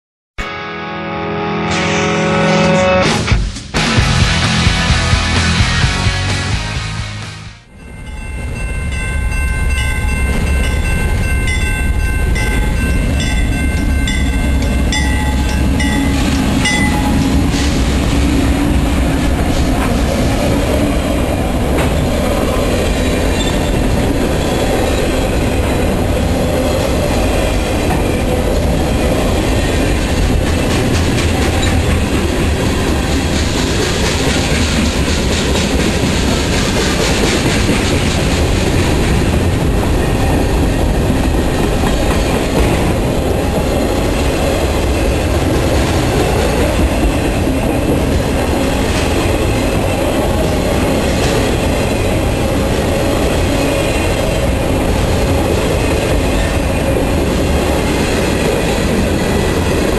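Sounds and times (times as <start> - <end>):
freight train wheels rumbling: 3.2 - 59.9
wheels clacking over rail joints: 29.6 - 54.3.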